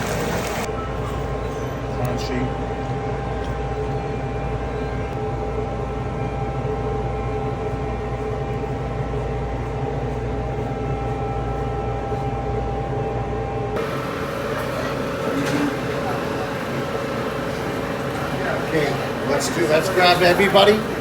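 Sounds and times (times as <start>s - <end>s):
kitchen equipment humming: 13.6s - 21.0s.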